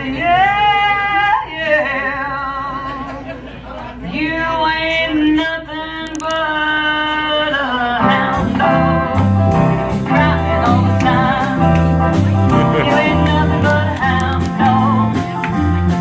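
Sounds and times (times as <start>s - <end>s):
light guitar: 7.9s - 16.0s
band playing: 8.0s - 16.0s
person singing: 9.9s - 15.3s.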